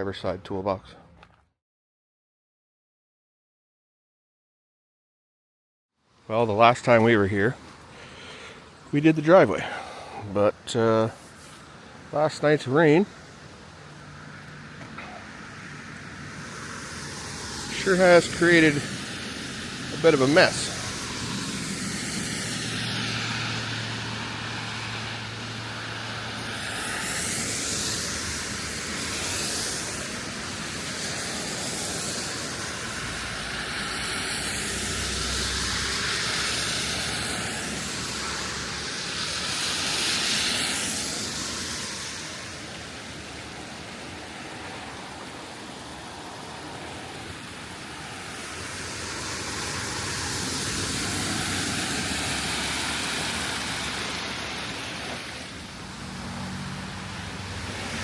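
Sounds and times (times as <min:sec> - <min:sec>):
stream water rushing: 0:07.0 - 0:58.0.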